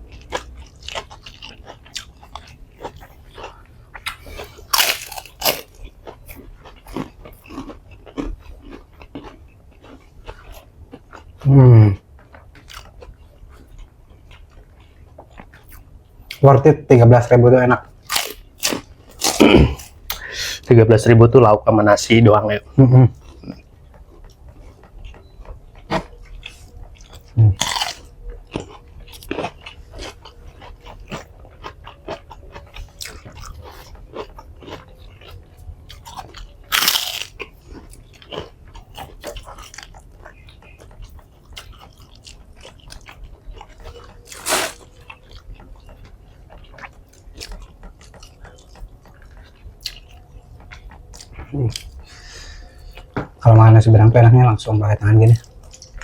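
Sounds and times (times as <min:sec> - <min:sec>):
wet chewing: 0:00.0 - 0:16.4, 0:17.8 - 0:20.6, 0:23.1 - 0:53.4, 0:55.2 - 0:56.0
crunchy bites: 0:00.1 - 0:11.9, 0:18.0 - 0:20.2, 0:25.8 - 0:53.1.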